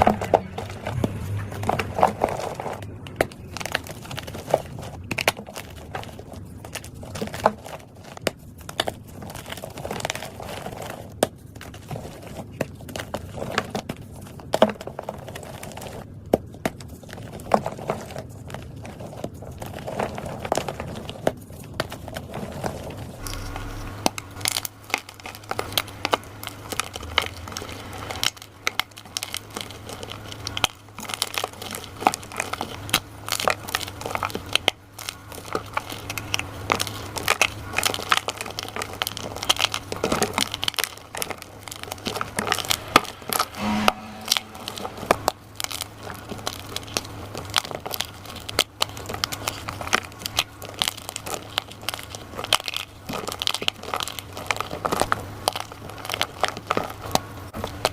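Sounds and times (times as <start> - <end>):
steady low hum: 0.0 - 7.2, 23.0 - 33.4, 39.3 - 48.4.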